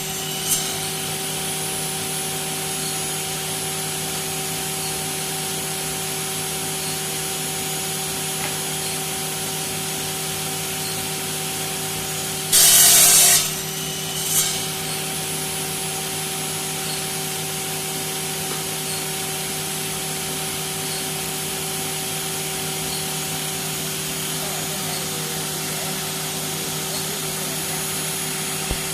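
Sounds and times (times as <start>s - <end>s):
saw blades cutting harshly: 0.0s - 3.1s, 12.5s - 17.0s
saw motor humming: 0.0s - 3.1s, 12.5s - 16.9s.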